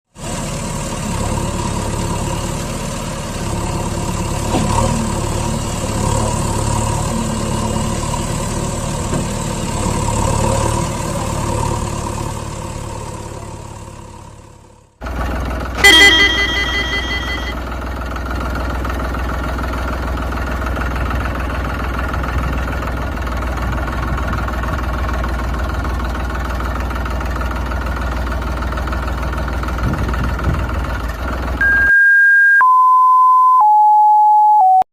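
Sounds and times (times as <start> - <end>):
tractor engine running: 0.2 - 31.6
engine running steadily: 12.8 - 31.6
short beeps: 15.8 - 17.6, 31.6 - 34.8.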